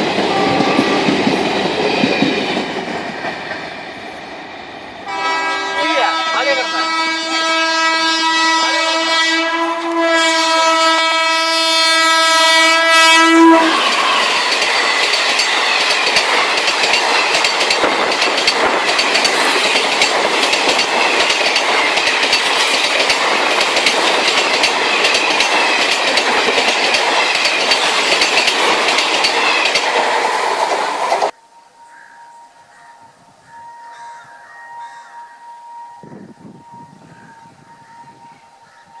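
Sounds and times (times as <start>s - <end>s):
train wheels clattering over rails: 0.0s - 4.0s, 13.6s - 31.4s
train horn long blast: 0.3s - 1.2s, 5.0s - 14.5s.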